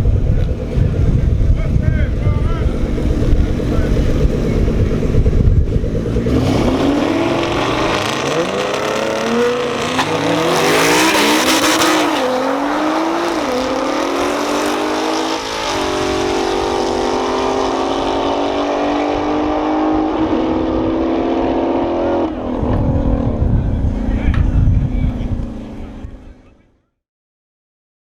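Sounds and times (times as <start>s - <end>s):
race car engines accelerating: 0.0s - 26.6s
wind-buffeted rumble: 0.0s - 26.6s.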